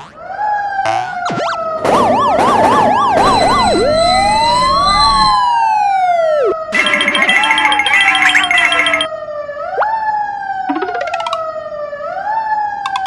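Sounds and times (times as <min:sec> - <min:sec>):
steady sinking siren tone: 0:01.8 - 0:06.8
electronic siren yelp: 0:01.8 - 0:09.1
siren rising and falling wail: 0:01.8 - 0:09.1.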